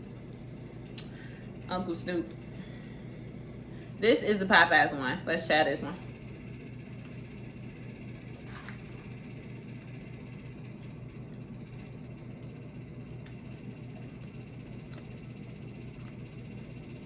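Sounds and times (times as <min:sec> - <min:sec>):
steady low hum: 0:00.0 - 0:17.0
faint chewing crunches: 0:13.1 - 0:16.4.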